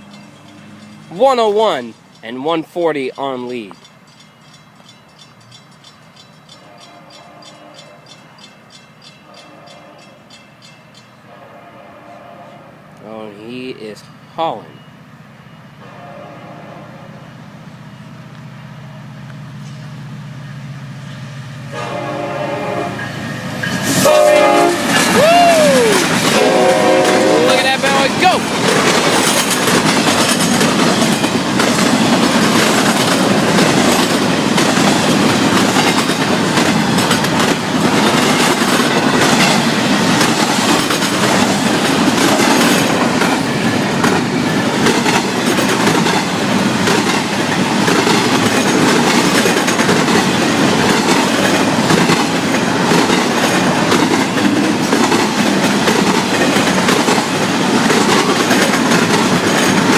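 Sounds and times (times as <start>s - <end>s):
freight train cars rolling: 0.0s - 59.9s
train wheel clicks: 27.0s - 59.9s.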